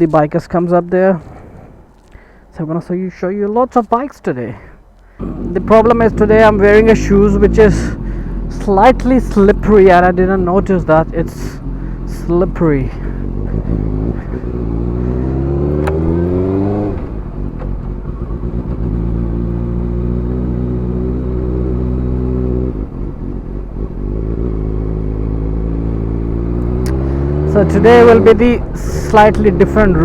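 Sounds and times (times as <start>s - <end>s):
motorcycle engine accelerating: 5.2s - 30.0s.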